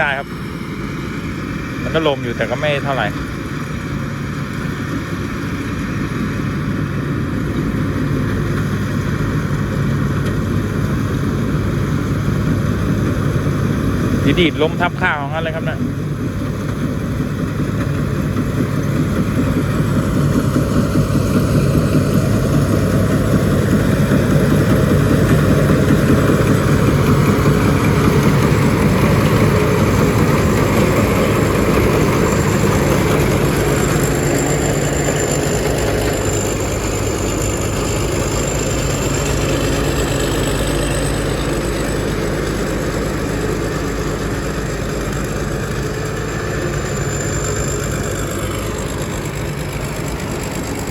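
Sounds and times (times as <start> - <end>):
diesel engine running: 0.0 - 50.9
thin high whine: 19.8 - 50.9.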